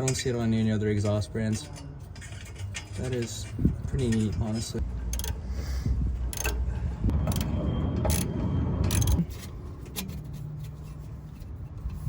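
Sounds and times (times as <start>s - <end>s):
metallic clicks and clinks: 0.0s - 5.4s, 6.2s - 6.7s.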